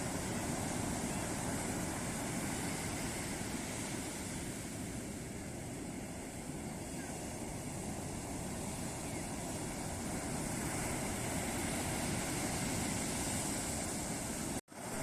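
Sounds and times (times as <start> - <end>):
surf breaking on a beach: 0.0 - 15.0.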